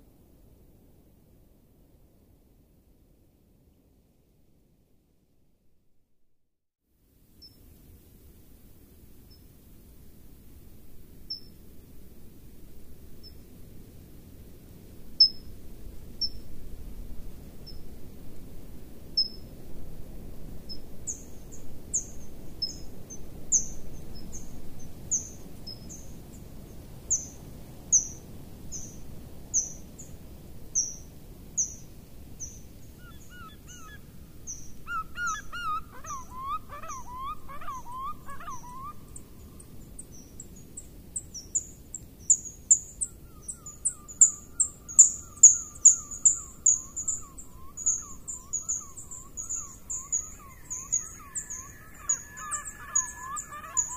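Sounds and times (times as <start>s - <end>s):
bird call with falling notes: 43.5s - 53.9s
high bird chirps: 43.5s - 53.9s.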